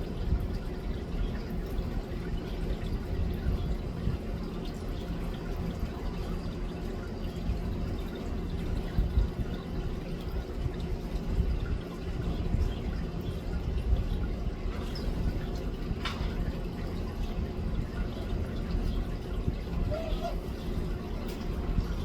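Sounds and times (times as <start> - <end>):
faint hum: 0.0 - 22.0
low rumbling background noise: 0.0 - 22.0.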